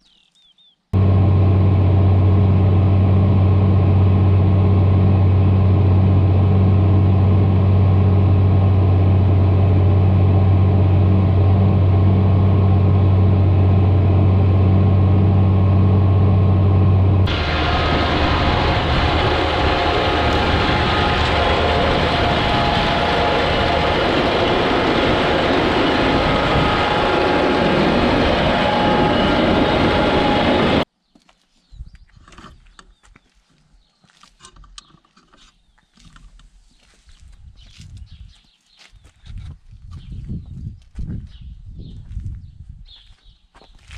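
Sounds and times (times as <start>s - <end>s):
tractor rattling and rumbling: 1.0s - 30.9s.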